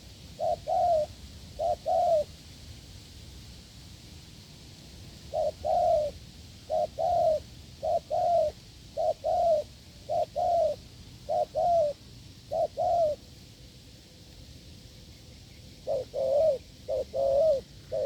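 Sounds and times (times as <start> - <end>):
dove cooing: 0.0 - 2.3, 5.3 - 13.2, 15.8 - 18.0.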